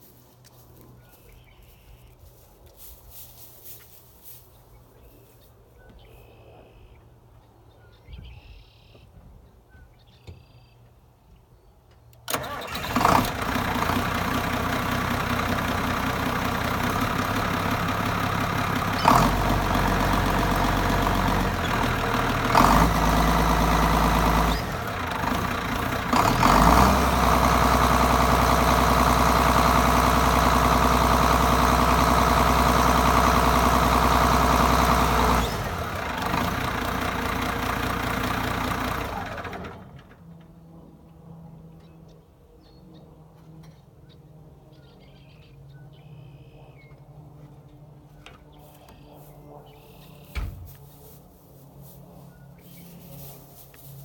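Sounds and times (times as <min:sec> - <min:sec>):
tractor diesel engine idling and revving: 0:12.3 - 0:40.2.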